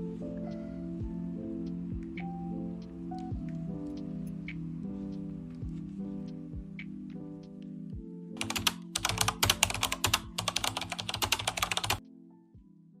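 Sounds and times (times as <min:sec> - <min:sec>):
background music: 0:00.0 - 0:13.0
fast typing on keyboard: 0:08.4 - 0:12.0.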